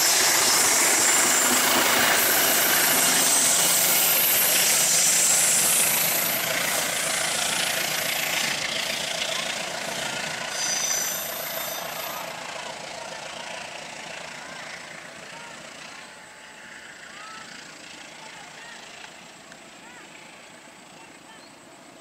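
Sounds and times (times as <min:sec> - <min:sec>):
train wheels on rails: 0:00.0 - 0:22.0
brief high squeal: 0:10.5 - 0:12.2.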